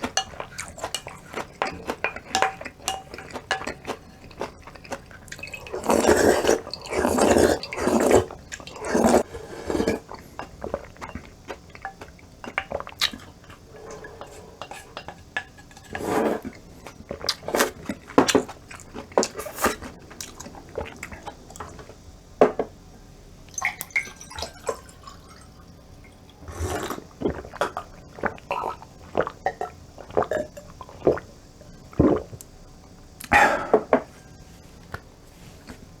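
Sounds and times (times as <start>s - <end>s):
slurping soup: 0.0s - 11.7s, 12.8s - 21.8s, 26.4s - 31.3s
chewing: 0.0s - 22.0s.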